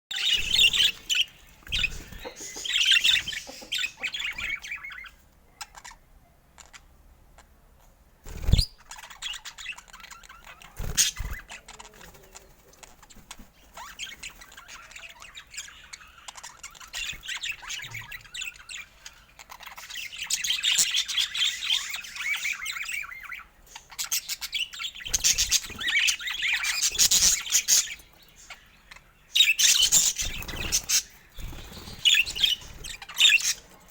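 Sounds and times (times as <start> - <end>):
budgerigars chattering: 0.1 - 6.0, 13.1 - 33.9.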